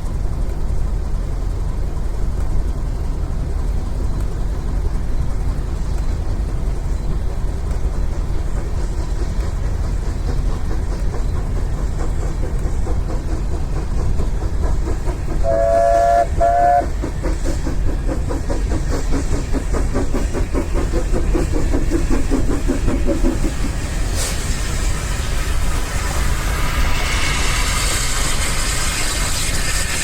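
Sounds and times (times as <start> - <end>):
train rumbling: 0.0 - 30.0
train horn toots: 15.4 - 17.0.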